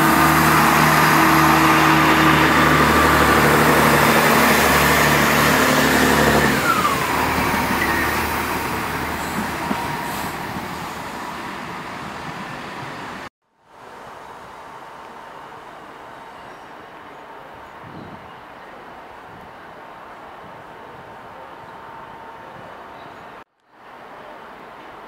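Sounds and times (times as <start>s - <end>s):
diesel train engines running: 0.0s - 13.3s
train rail noise: 0.0s - 13.3s.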